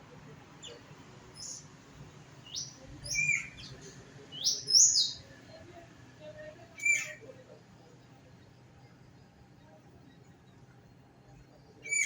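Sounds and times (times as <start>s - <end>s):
birds chirping: 0.6s - 1.7s.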